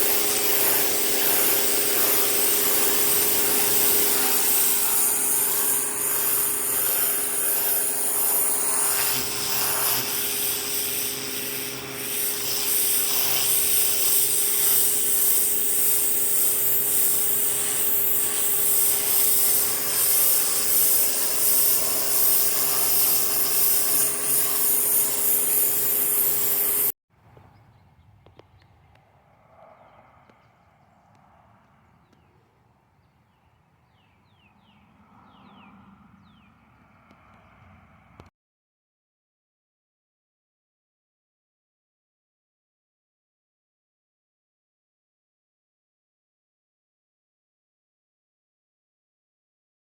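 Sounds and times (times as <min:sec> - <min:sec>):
motor hum: 0:00.0 - 0:26.9
pressure washer water jet hiss: 0:00.0 - 0:26.9.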